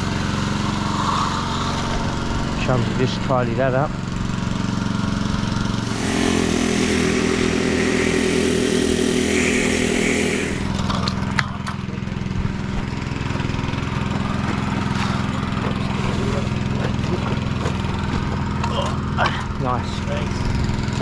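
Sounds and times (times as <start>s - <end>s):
hiss: 5.8s - 10.7s
petrol engine running: 5.8s - 10.8s.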